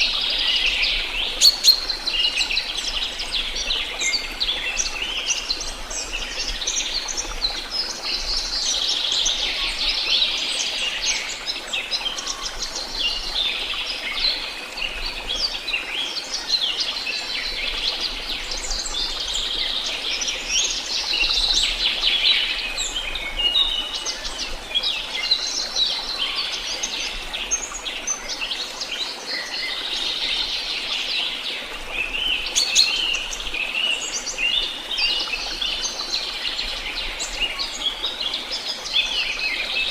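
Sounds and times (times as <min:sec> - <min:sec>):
songbirds chirping: 0:00.0 - 0:04.6, 0:25.0 - 0:39.9.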